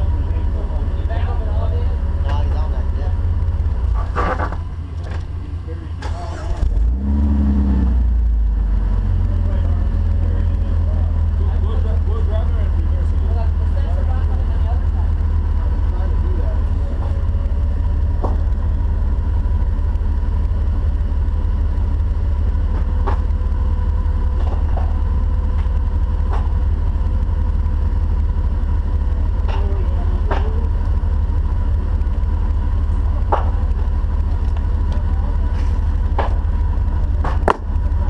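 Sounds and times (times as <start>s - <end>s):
vehicle engine rumbling: 0.0s - 38.0s
sharp knocks and clicks: 22.7s - 23.5s, 29.4s - 31.0s, 36.0s - 37.9s.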